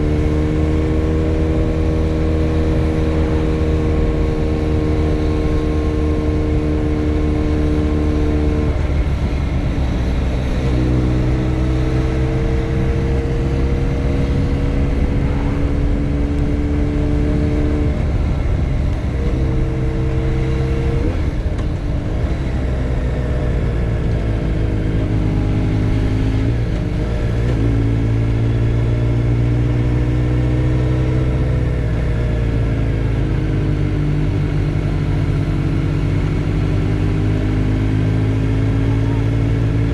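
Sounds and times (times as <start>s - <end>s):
motorcycle engine revving: 0.0s - 39.9s
low rumble: 6.8s - 27.7s.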